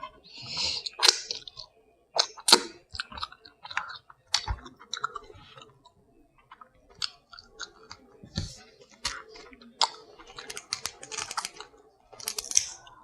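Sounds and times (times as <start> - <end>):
chewing and mouth sounds: 0.0 - 13.0
shell cracking and clicking: 6.5 - 13.0.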